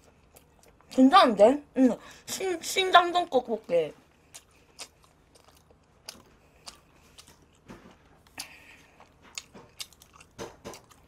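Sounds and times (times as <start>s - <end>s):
faint chewing: 0.0s - 1.1s, 3.6s - 11.0s.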